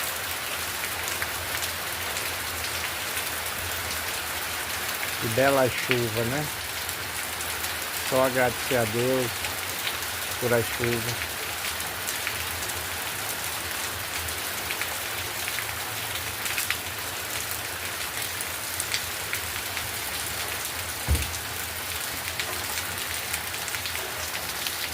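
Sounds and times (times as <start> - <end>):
steady rain falling: 0.0 - 24.9
raindrops clicking on a surface: 7.7 - 12.5, 14.1 - 24.9
low thump: 21.0 - 21.4.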